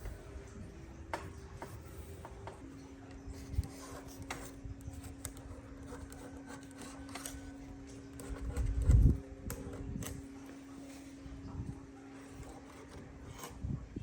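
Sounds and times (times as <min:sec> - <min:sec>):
steady low hum: 0:00.0 - 0:14.0
light rubbing or scraping: 0:01.2 - 0:14.0.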